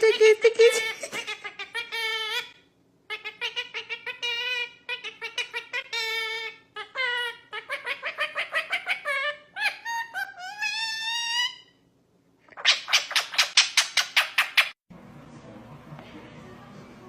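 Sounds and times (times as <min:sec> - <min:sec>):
bird chirping: 0:12.5 - 0:14.8.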